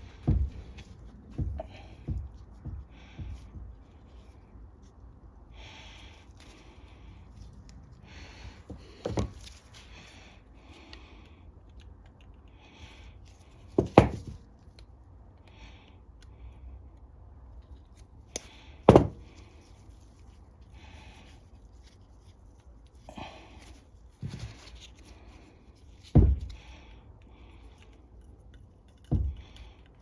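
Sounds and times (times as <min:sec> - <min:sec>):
tools and parts rustling: 0:00.0 - 0:04.4, 0:06.2 - 0:10.1, 0:13.4 - 0:14.5, 0:21.2 - 0:26.8
sharp knocks: 0:13.8 - 0:14.4, 0:18.9 - 0:19.2.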